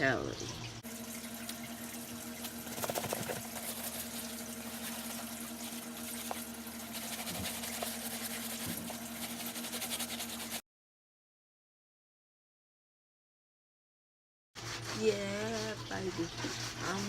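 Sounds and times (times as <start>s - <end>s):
running water: 0.0s - 10.6s
brush scrubbing a sneaker: 2.4s - 10.6s, 14.6s - 17.0s.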